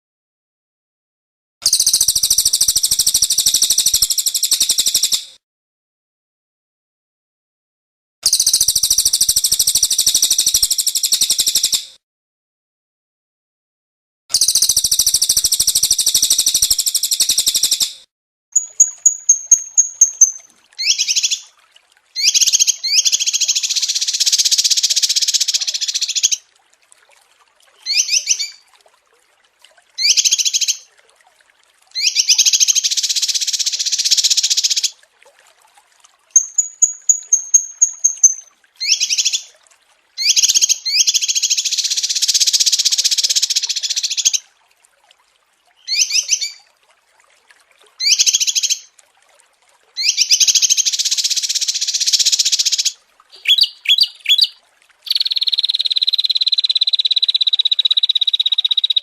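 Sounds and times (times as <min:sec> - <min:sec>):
songbirds trilling and warbling: 0:53.3 - 0:56.1.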